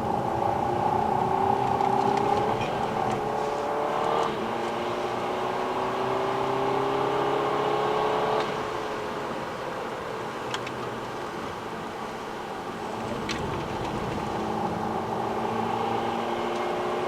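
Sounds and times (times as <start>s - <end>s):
car engine accelerating hard: 0.0s - 9.4s, 12.8s - 17.0s.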